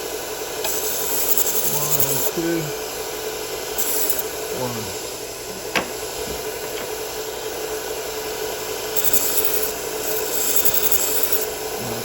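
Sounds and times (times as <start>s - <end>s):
belt sander humming: 3.8s - 7.4s.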